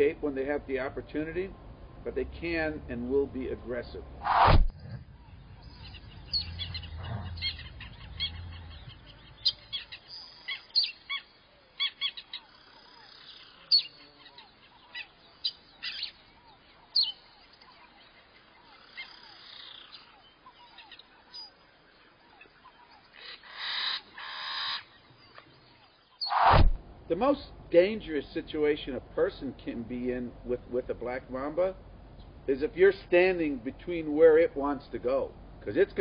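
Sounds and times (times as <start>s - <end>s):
rustling noise burst: 4.2s - 5.0s, 26.3s - 26.9s
small birds chirping: 4.7s - 26.4s, 31.3s - 32.5s.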